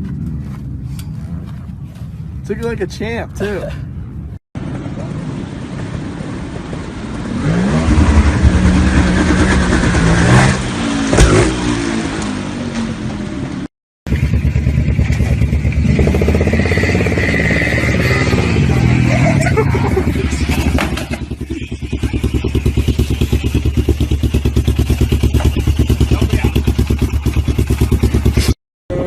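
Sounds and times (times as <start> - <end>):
motorcycle engine revving: 4.6 - 29.0
motorcycle engine running steadily: 12.2 - 17.1, 18.1 - 29.0.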